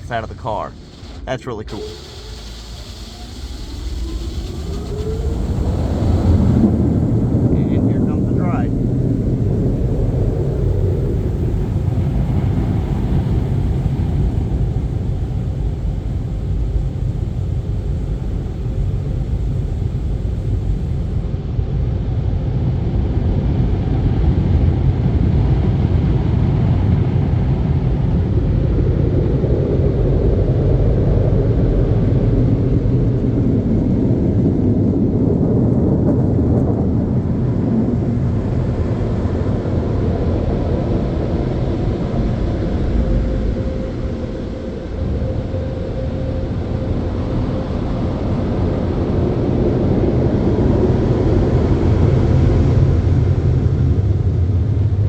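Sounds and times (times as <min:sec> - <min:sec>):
car wash dryer blowers: 0:00.0 - 0:21.3, 0:33.2 - 0:55.0.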